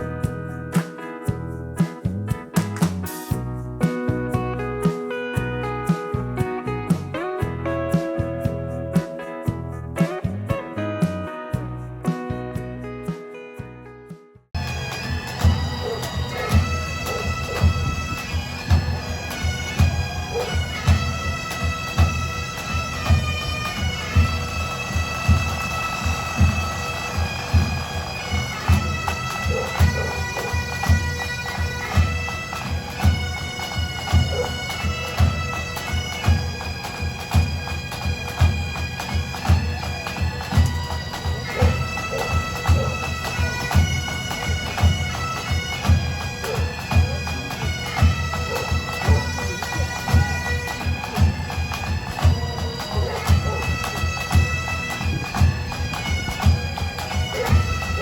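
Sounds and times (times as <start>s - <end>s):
drums beating march rhythm: 0.0s - 11.2s, 14.6s - 58.0s
bagpipe melody over drone: 14.6s - 58.0s.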